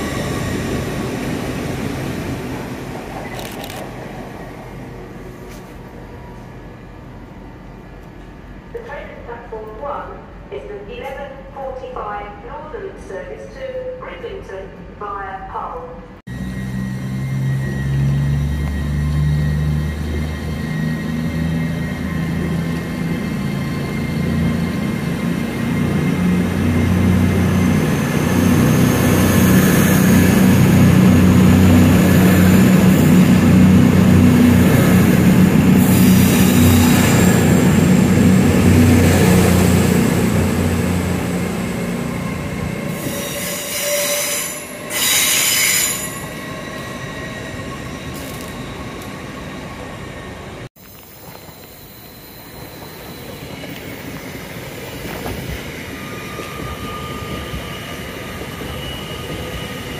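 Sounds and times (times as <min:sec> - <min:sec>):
high-pitched wheel squeal: 0:16.3 - 0:22.6, 0:42.9 - 0:49.6, 0:51.4 - 0:55.1, 0:55.8 - 0:59.9.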